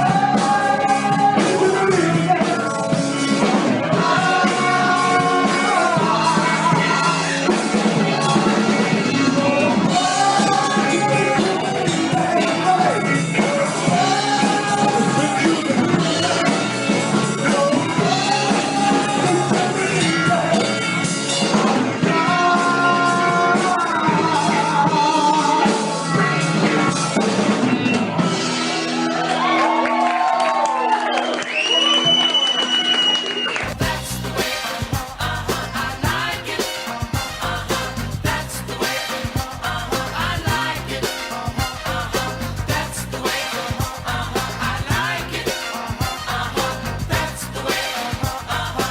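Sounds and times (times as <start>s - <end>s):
drums: 0.0s - 30.0s, 31.2s - 48.9s
soul band playing: 0.0s - 30.3s, 33.6s - 48.9s.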